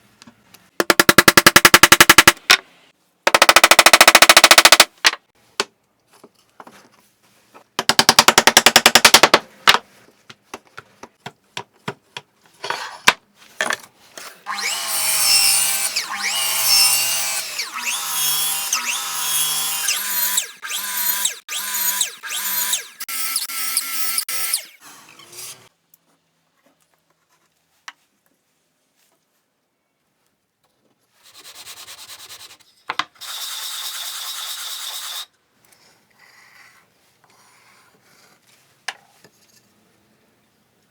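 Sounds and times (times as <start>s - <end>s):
power tool pulsing: 14.5s - 24.8s.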